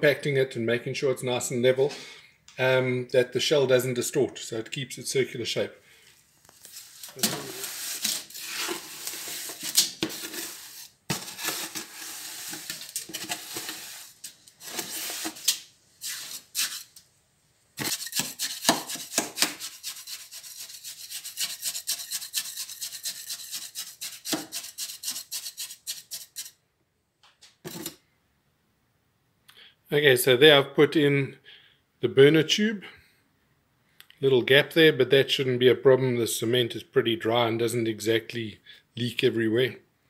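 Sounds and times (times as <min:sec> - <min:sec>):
tool scraping cement mix: 0:06.7 - 0:17.0, 0:17.8 - 0:26.6.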